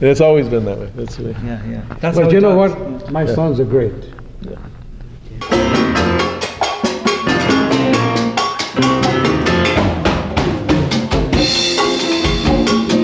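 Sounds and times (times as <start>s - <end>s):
busy drum kit: 5.4s - 13.0s
latin jazz band playing: 5.4s - 13.0s.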